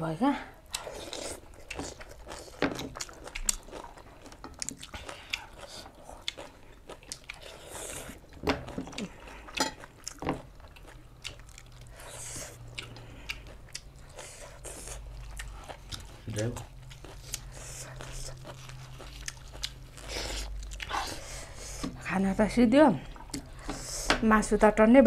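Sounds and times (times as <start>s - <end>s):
person biting and chewing food: 0.7s - 22.0s.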